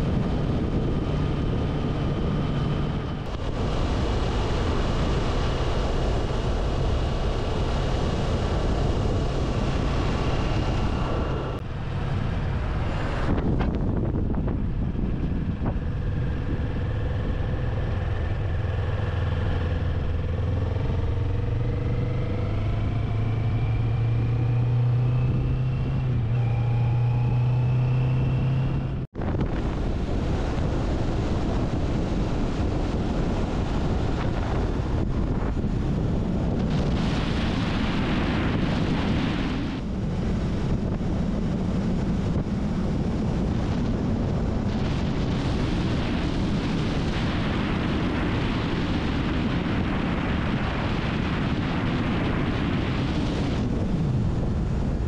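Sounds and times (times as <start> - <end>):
motorcycle engine: 0.0 - 37.2
wind rushing over microphone: 0.0 - 55.0.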